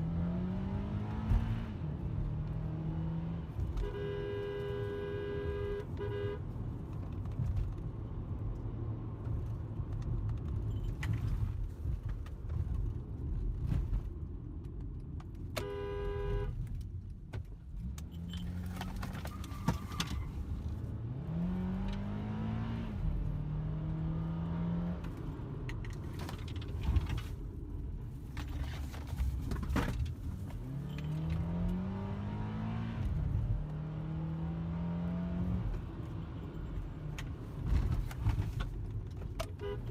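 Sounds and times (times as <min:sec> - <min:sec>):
car road and engine noise: 0:00.0 - 0:39.9
car horn: 0:03.6 - 0:06.5, 0:15.6 - 0:16.6, 0:39.5 - 0:39.9.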